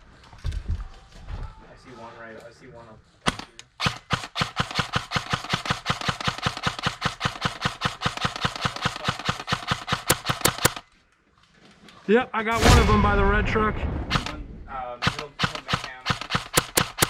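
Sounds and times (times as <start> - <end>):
airsoft gun rapid firing: 3.3 - 10.8, 15.0 - 17.0.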